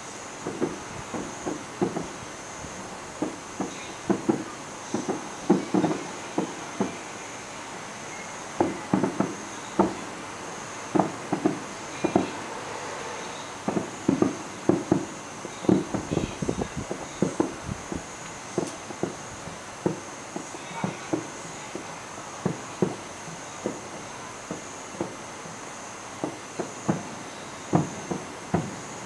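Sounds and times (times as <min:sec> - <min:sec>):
fireworks bangs and pops: 0:00.4 - 0:07.2, 0:08.1 - 0:10.2, 0:10.8 - 0:12.4, 0:13.5 - 0:25.6, 0:26.2 - 0:29.0.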